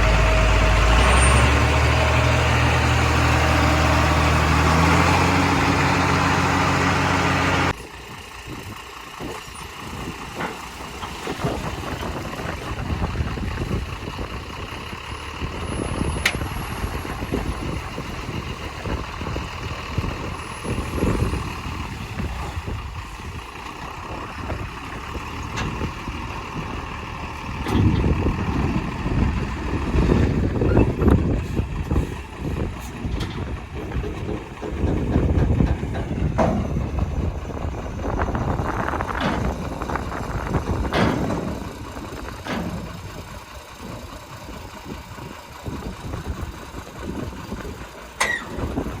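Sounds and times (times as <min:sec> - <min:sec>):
diesel engine running: 0:00.0 - 0:49.0.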